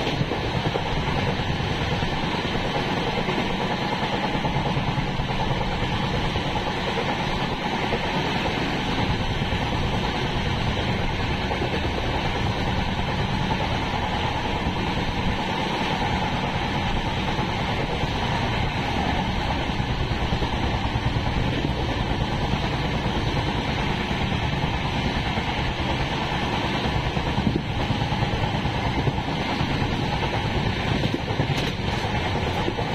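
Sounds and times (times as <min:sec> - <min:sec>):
train coaches rumbling and rattling: 0:00.0 - 0:32.9.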